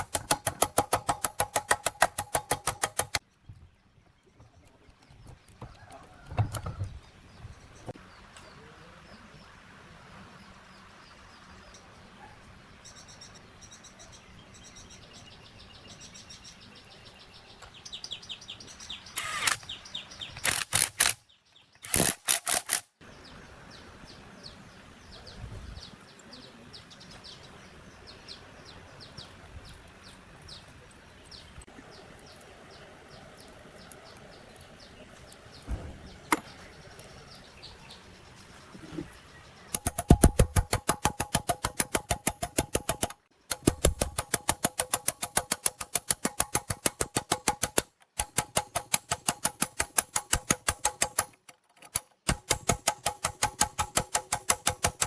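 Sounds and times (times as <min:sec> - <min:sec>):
birds chirping: 0:02.2 - 0:43.6.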